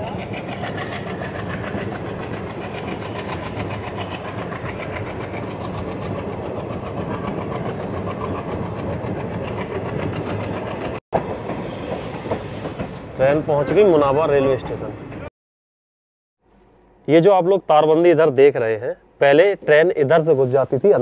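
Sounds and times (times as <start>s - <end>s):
train wheels rattling on rails: 0.0s - 15.3s.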